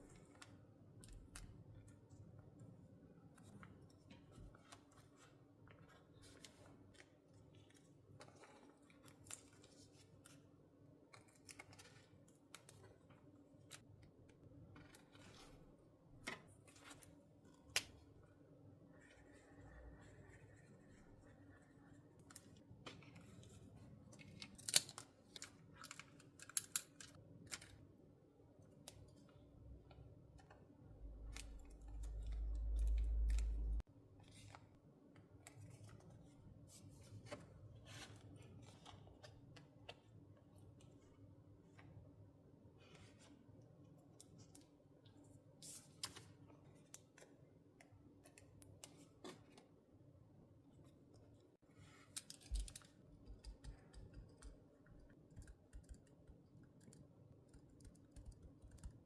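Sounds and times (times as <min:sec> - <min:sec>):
paper and stationery clicks: 0:52.1 - 0:59.0.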